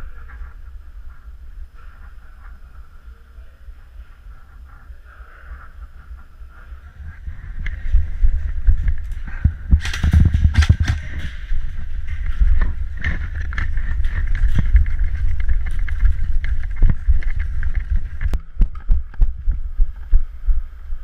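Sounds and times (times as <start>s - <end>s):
wind buffeting microphone: 6.7s - 21.0s
sharp clicks and knocks: 7.5s - 19.4s.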